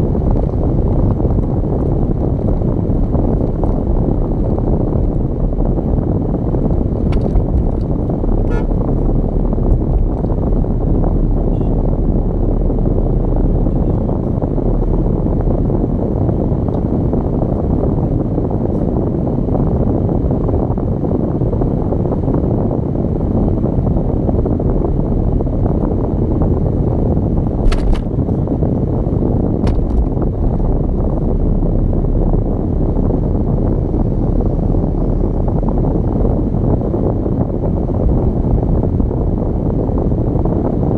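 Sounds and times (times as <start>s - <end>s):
car road and wind noise: 0.0s - 40.9s
sharp clicks or knocks: 27.6s - 28.1s, 29.6s - 30.2s.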